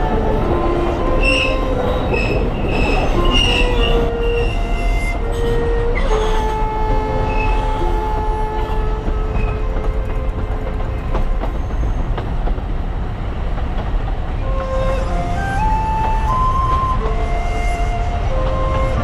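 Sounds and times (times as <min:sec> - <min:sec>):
faint clicks from rails: 0:00.0 - 0:19.0
train rumbling: 0:00.0 - 0:19.0
train wheels squealing: 0:00.8 - 0:10.3, 0:10.9 - 0:12.2.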